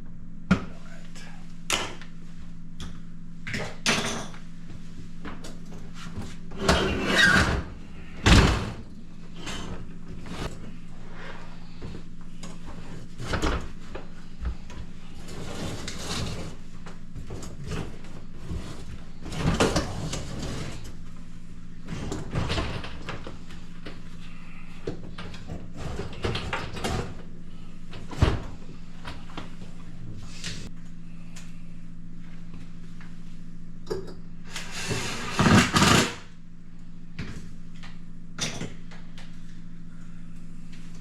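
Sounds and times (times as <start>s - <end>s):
steady low hum: 0.0s - 41.0s
dishwasher parts knocking and scraping: 17.2s - 20.8s.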